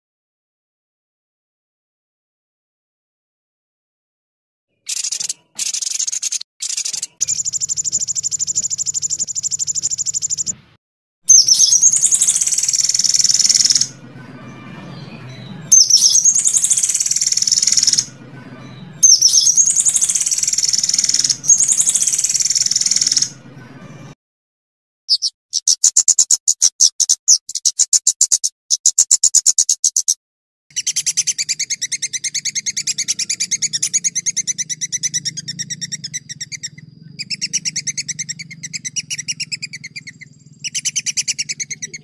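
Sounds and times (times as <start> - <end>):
songbird trills and chattering: 4.8 - 10.6, 11.3 - 23.4, 25.1 - 42.0.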